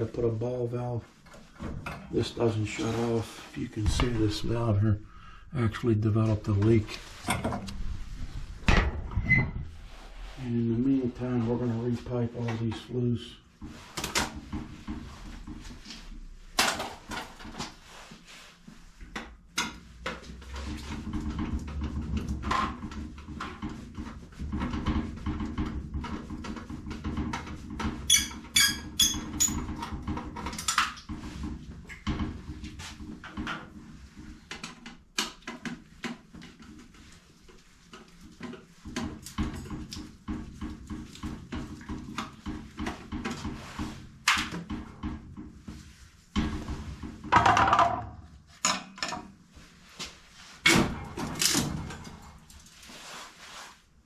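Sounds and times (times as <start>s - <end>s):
knocks and clanks on metal pipe: 19.2s - 33.8s, 38.4s - 49.3s.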